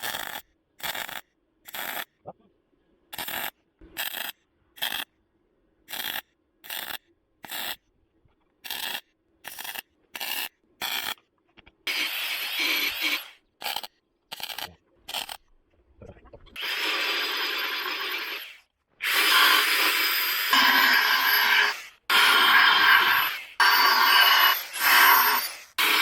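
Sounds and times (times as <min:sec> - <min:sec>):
welding arc crackling: 0:03.2 - 0:05.0, 0:08.6 - 0:11.2, 0:11.9 - 0:15.4.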